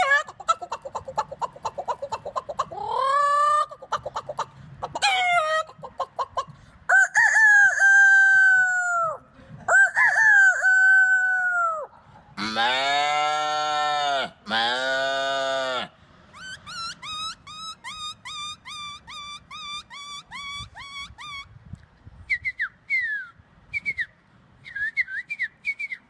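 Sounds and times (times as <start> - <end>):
man imitating hen clucking: 0.0 - 15.9
man imitating rooster crows: 6.9 - 15.9.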